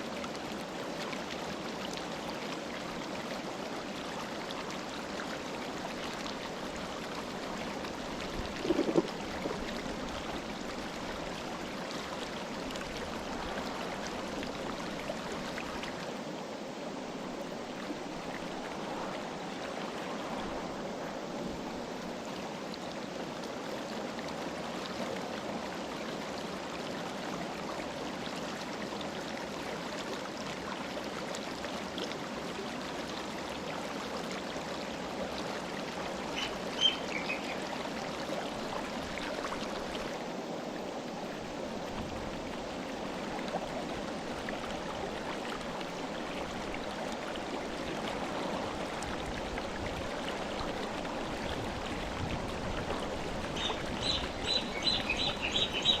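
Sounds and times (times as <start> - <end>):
low water gurgle: 0.0 - 56.0.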